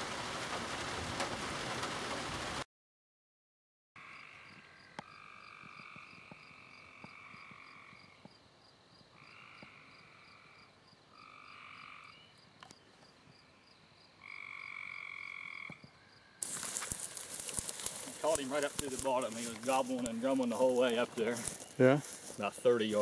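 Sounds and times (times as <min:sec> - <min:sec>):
frog trills: 0:04.0 - 0:08.2, 0:09.1 - 0:12.4, 0:14.2 - 0:16.2.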